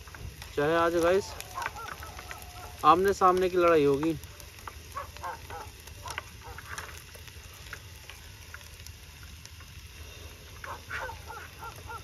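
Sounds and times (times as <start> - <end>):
onions sizzling in a pan: 0.0 - 12.0
distant dogs barking: 1.0 - 3.1, 4.2 - 7.0, 10.6 - 12.0.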